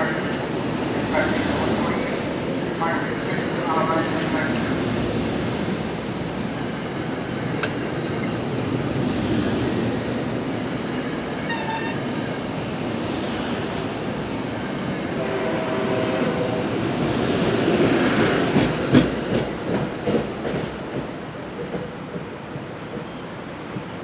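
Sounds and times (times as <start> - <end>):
train rumbling on rails: 0.0 - 24.0
short high horn toot: 11.5 - 12.0.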